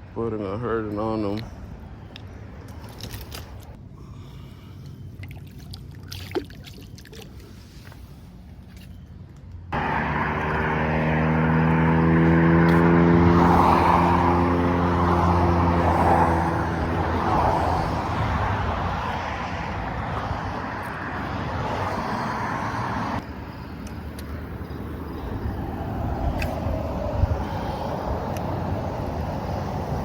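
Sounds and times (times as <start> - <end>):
road noise: 0.0 - 30.0
vehicle engine running: 9.7 - 21.4.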